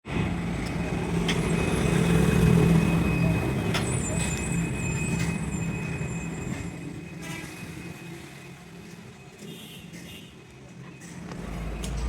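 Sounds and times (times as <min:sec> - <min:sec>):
heavy truck engine running: 0:10.9 - 0:12.0.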